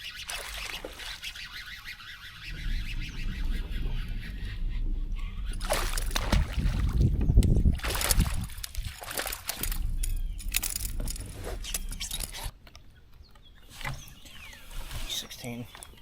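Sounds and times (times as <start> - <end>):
water splashing around kayak: 0.0 - 12.5
low rumble: 2.2 - 12.5.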